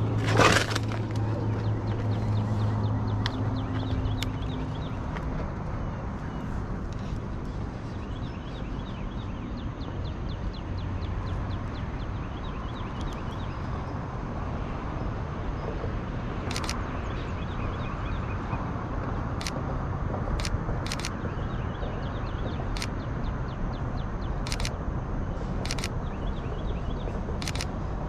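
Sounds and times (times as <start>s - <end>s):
low outdoor rumble: 0.0s - 28.0s
camera shutter clicks: 16.5s - 16.8s, 20.4s - 21.2s, 24.5s - 24.8s, 25.6s - 26.0s, 27.4s - 27.7s.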